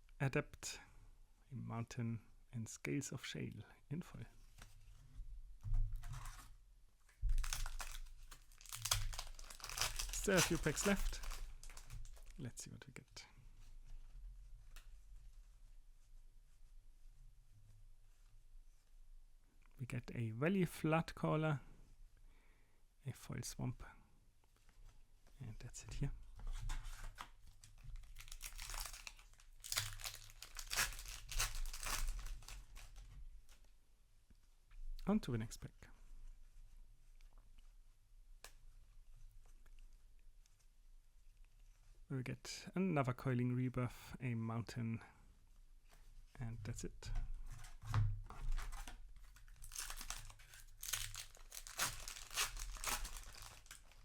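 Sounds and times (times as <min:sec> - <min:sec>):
foil wrapper crinkling: 0:07.3 - 0:12.4, 0:27.2 - 0:33.1, 0:48.6 - 0:54.0.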